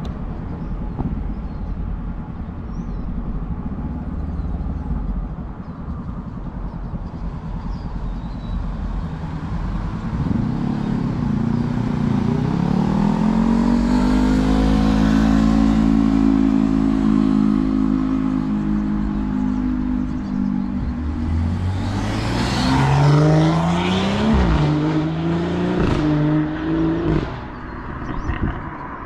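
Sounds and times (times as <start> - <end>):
wind and road noise: 0.0 - 29.0
engine accelerating: 7.2 - 29.0.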